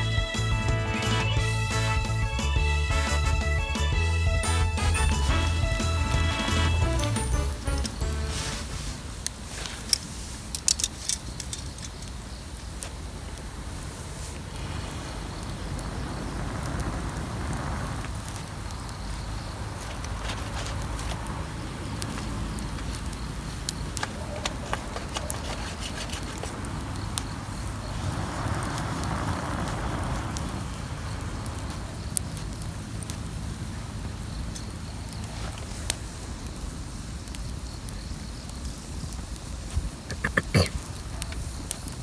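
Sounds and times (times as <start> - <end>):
fire popping: 0.3 - 42.0
wood fire crackling: 0.3 - 42.0
hiss: 8.2 - 11.1, 13.3 - 19.8, 25.6 - 32.0
low rumble: 14.4 - 18.6.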